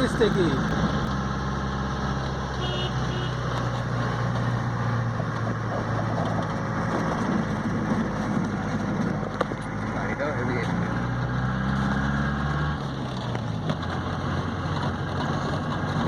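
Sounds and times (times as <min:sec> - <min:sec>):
vehicle engine idling: 0:00.0 - 0:04.0
road traffic: 0:00.0 - 0:16.0.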